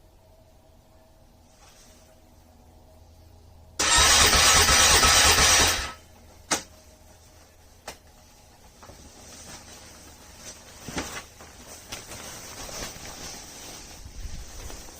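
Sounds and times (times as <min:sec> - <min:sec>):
engine cold-start attempt: 0:03.8 - 0:06.0.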